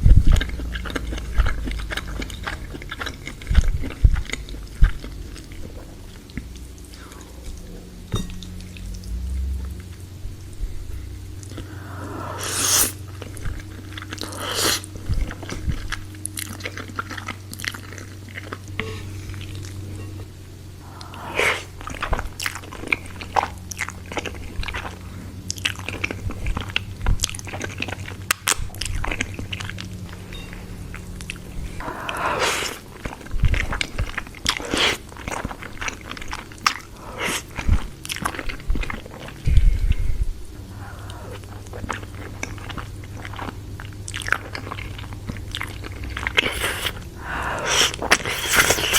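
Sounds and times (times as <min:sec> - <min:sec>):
biting and chewing crunches: 0:00.0 - 0:09.4, 0:11.4 - 0:20.0, 0:20.8 - 0:48.9
steady low hum: 0:00.0 - 0:48.9
wet mouth clicks: 0:12.3 - 0:13.0, 0:46.0 - 0:48.9.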